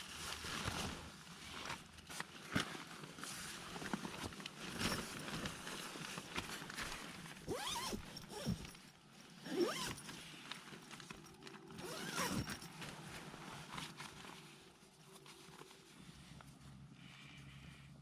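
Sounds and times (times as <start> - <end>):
zipper pulled: 7.5 - 8.8, 9.4 - 10.2, 11.7 - 12.7.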